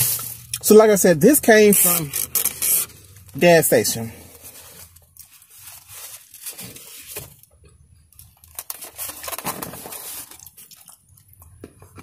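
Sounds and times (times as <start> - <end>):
chewing and crunching fried food: 4.2 - 12.0.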